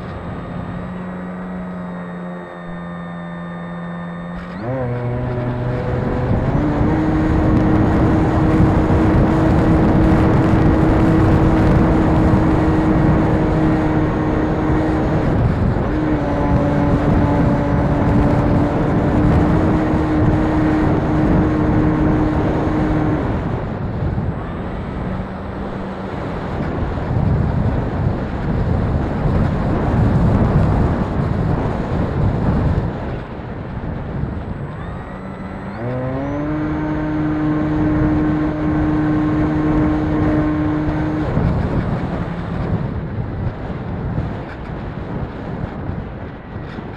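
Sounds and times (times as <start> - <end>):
model airplane motor whining: 0.0 - 45.2
wind buffeting microphone: 0.0 - 46.9.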